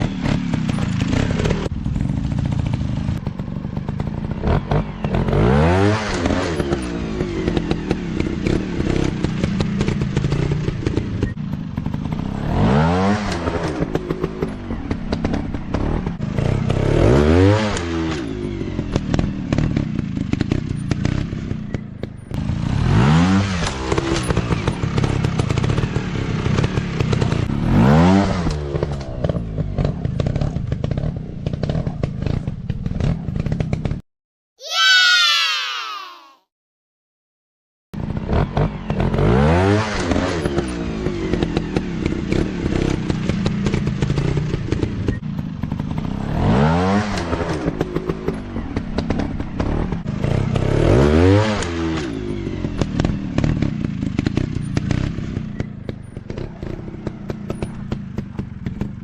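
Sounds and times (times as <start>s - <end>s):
dirt bike engines revving: 0.0s - 21.8s
clatter of bikes on rough ground: 0.0s - 34.0s, 38.0s - 59.0s.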